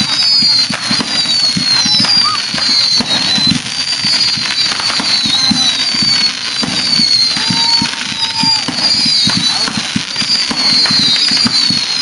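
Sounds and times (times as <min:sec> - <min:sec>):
fireworks popping and crackling: 0:00.0 - 0:12.0
fireworks whistling downward: 0:00.0 - 0:12.0.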